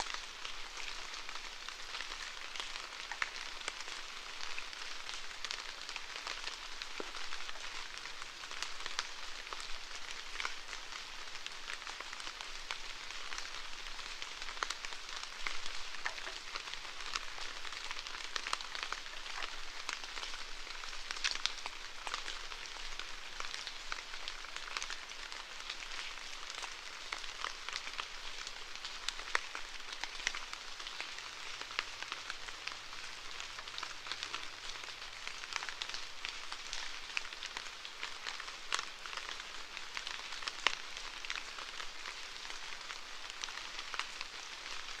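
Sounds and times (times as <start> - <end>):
steady rainfall: 0.0 - 45.0.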